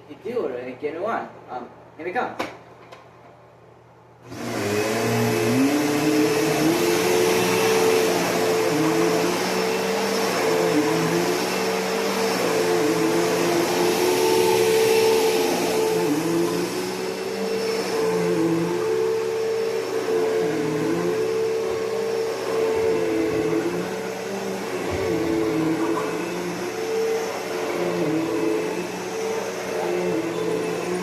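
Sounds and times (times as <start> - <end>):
upright vacuum cleaner running: 4.2 - 31.0.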